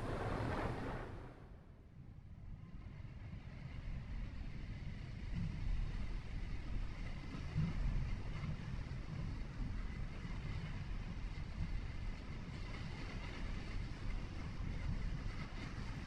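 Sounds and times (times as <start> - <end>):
car engine and tyre rumble: 0.0 - 1.6.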